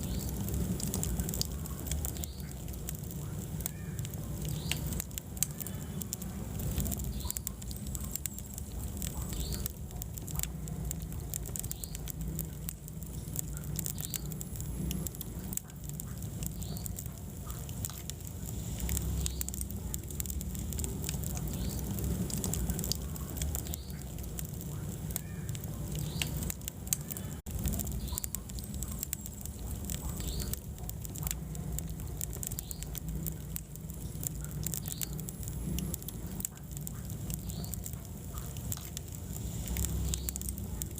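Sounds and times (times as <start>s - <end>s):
fire crackling and popping: 0.0s - 40.9s
low rumble of flames: 0.0s - 40.9s.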